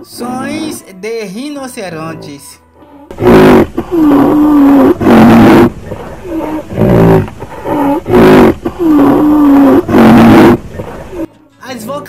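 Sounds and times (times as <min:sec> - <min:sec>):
large animal roaring: 0:03.1 - 0:11.3.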